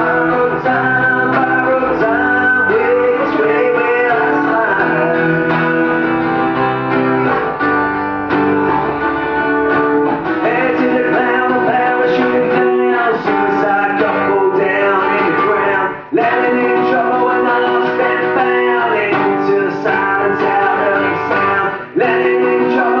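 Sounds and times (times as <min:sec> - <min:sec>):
person singing: 0:00.0 - 0:07.6, 0:10.3 - 0:23.0
live band with guitar: 0:00.0 - 0:23.0.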